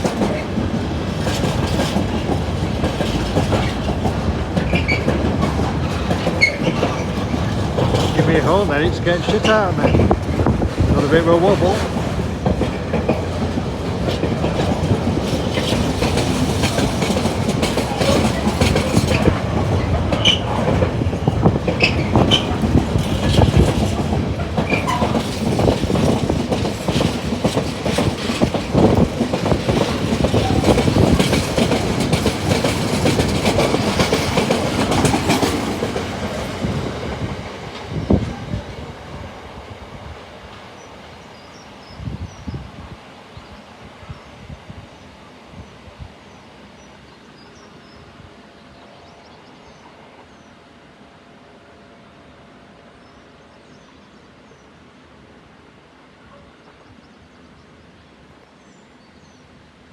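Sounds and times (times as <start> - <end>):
train wheels clattering over rail joints: 0.0 - 38.5.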